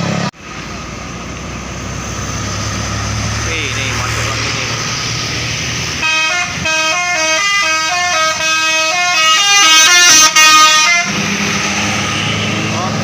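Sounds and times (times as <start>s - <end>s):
bus musical horn tune: 6.0s - 11.2s.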